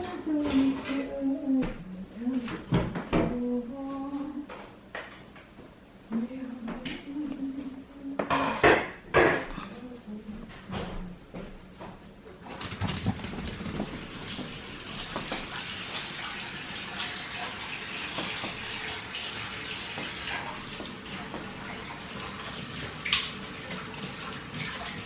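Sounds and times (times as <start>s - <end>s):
tap water running into sink: 13.0s - 25.0s.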